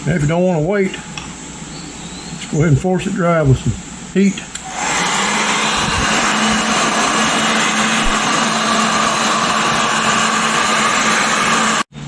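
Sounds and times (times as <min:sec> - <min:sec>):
hot-air blower motor hum: 0:04.5 - 0:12.0.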